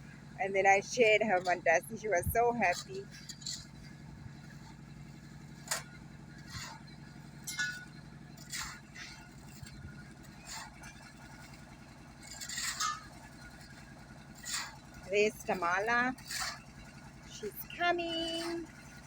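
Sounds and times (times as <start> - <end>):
engine humming: 0.0 - 19.0
clinks and scrapes: 2.6 - 4.7, 5.6 - 11.5, 12.2 - 16.7.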